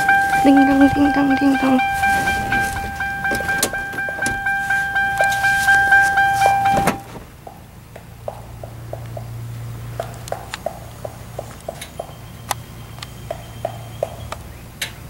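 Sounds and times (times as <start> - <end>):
car door warning chime: 0.0 - 7.2
car door shutting thud: 1.9 - 7.4.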